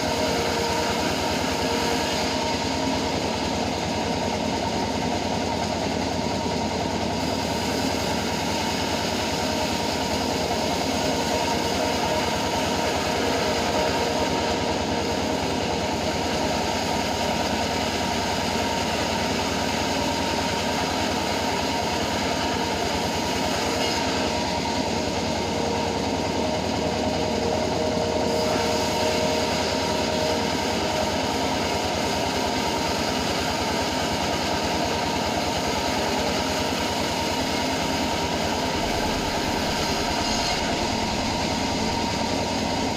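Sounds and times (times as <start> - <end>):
band sawmill running: 0.0 - 42.9.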